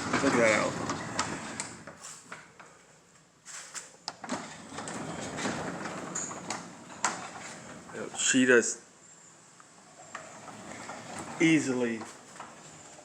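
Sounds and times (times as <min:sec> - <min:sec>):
garage door rollers rumbling: 0:00.0 - 0:02.1, 0:04.2 - 0:08.4, 0:09.9 - 0:13.0.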